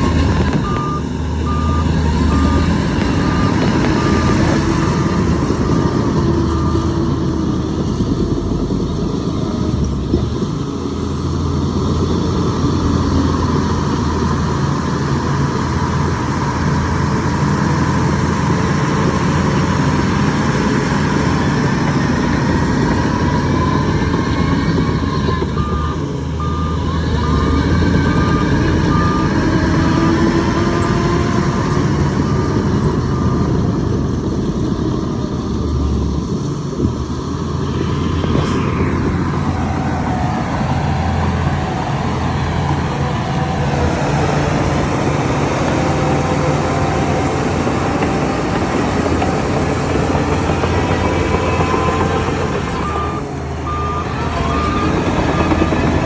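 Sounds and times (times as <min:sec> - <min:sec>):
reversing alarm beeping: 0:00.0 - 0:07.2, 0:23.1 - 0:30.2, 0:49.2 - 0:56.0
heavy diesel machinery running: 0:00.0 - 0:56.0.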